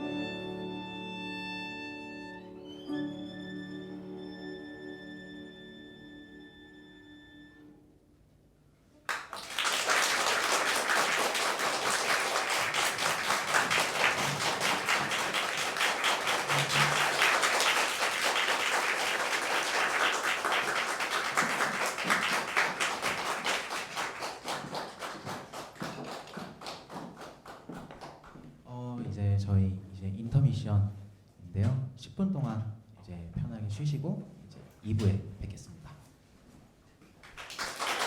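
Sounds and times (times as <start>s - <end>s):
audience applause: 9.1s - 28.2s, 37.2s - 38.0s.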